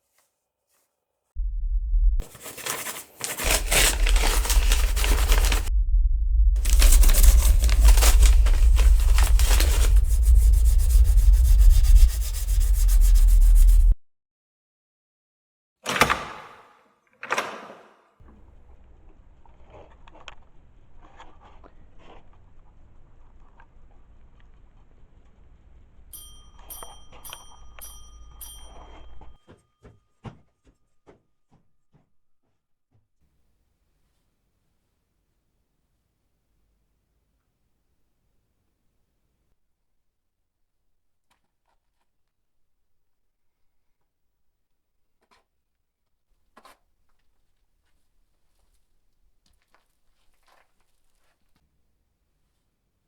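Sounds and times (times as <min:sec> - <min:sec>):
steady low rumble: 0:01.4 - 0:02.2, 0:03.5 - 0:14.0
rubbing and scraping: 0:02.2 - 0:05.7, 0:06.6 - 0:14.0
bell-like chime ringing: 0:26.1 - 0:29.5.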